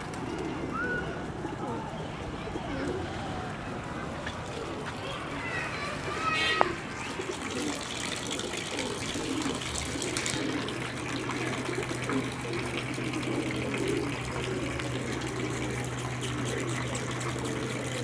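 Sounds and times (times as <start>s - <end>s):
running water: 4.4s - 18.0s
steady low hum: 9.6s - 18.0s.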